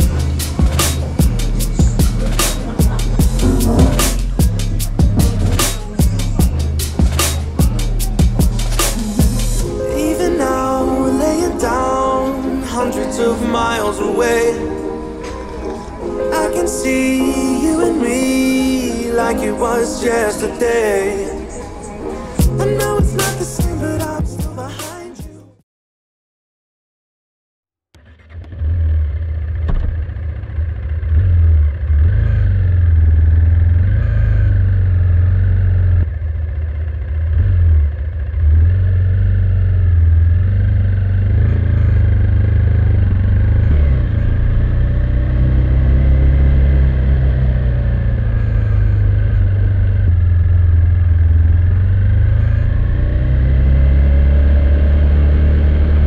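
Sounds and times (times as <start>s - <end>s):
motorcycle engine running: 0.0s - 9.7s, 28.0s - 56.0s.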